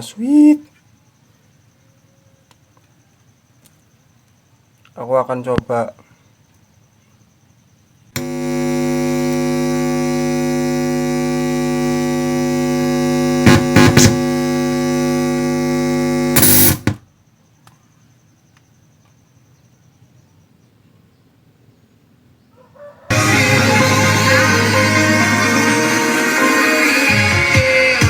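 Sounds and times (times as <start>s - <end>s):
amplifier mains hum: 7.8s - 17.2s
crackling pops: 8.2s - 9.6s, 13.4s - 14.4s, 16.3s - 17.0s.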